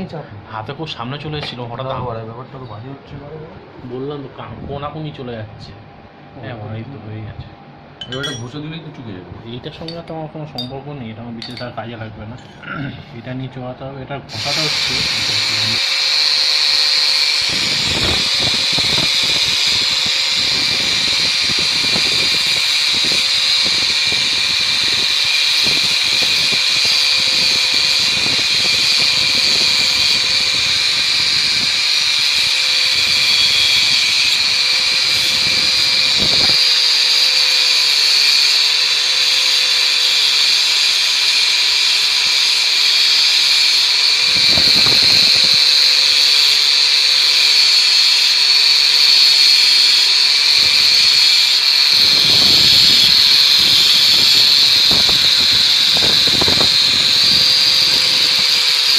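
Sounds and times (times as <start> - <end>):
angle grinder whining: 14.3 - 58.9
disc grinding steel: 14.3 - 58.9.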